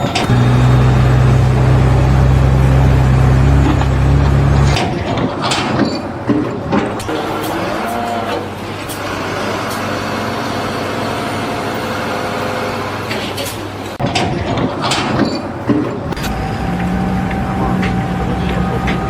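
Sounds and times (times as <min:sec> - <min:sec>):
large engine running: 0:00.0 - 0:19.0.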